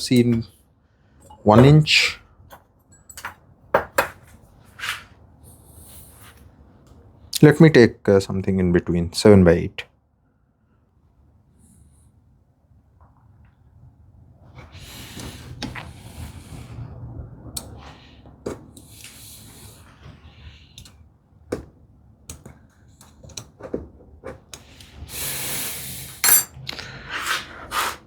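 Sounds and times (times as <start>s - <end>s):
tools clicking and knocking: 2.5s - 4.2s
knife scraping across wood: 4.7s - 5.1s, 27.1s - 28.0s.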